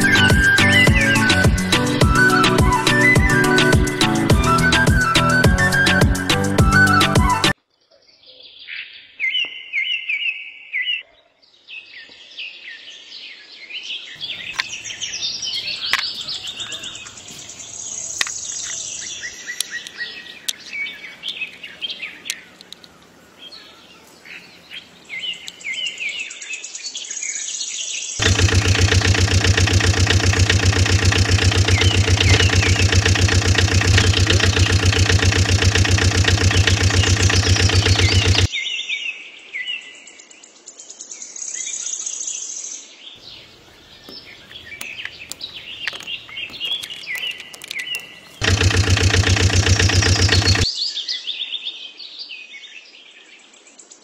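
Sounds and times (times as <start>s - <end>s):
pulsing engine-like drone: 0.0s - 6.4s, 28.2s - 38.5s, 48.4s - 50.6s
small birds chirping: 0.0s - 6.8s, 14.1s - 26.4s, 28.2s - 38.5s, 43.2s - 50.8s.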